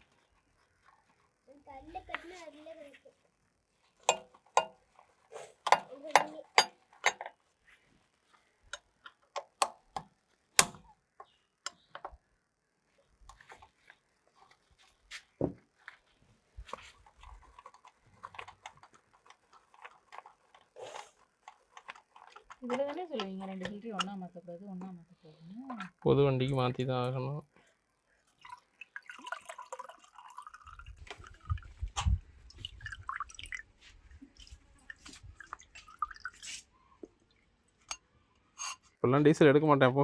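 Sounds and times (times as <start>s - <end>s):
metal tools clicking and knocking: 5.7s - 7.3s, 38.6s - 39.0s.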